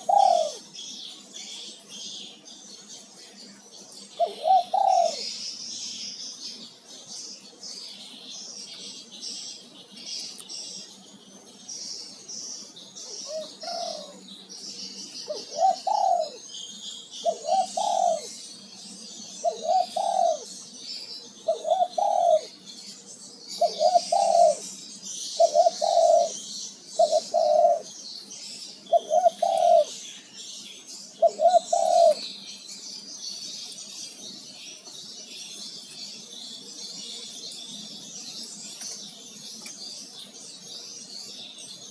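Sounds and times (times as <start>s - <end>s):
dove cooing: 0.0s - 3.0s, 4.0s - 6.0s, 13.0s - 18.5s, 19.2s - 22.7s, 23.5s - 28.0s, 28.7s - 30.0s, 31.1s - 32.4s
small birds twittering: 0.0s - 41.9s.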